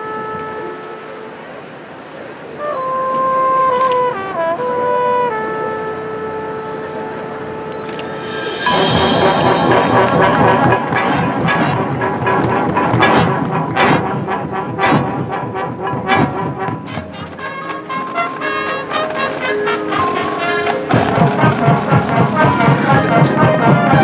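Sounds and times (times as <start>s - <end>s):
marching band brass: 2.6s - 24.0s
marching drums: 7.7s - 24.0s.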